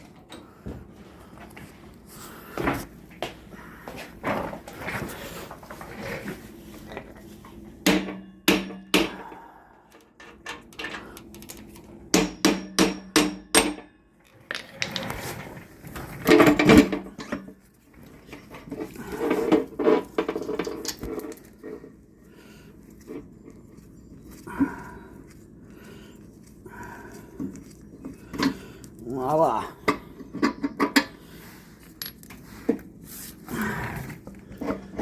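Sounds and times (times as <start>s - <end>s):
hammer striking metal: 7.8s - 9.3s, 12.2s - 13.9s.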